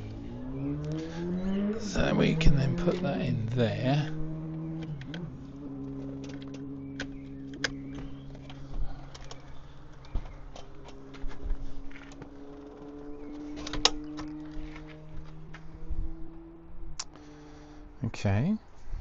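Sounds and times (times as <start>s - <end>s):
low hum of held tones: 0.0s - 19.0s
parts clicking and tapping: 4.8s - 15.6s.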